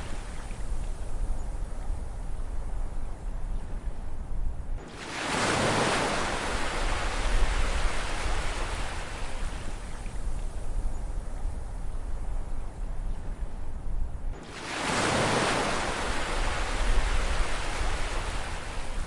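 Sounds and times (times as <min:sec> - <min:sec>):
low rumble of surf: 0:00.0 - 0:19.0
ocean wave breaking: 0:14.4 - 0:18.9.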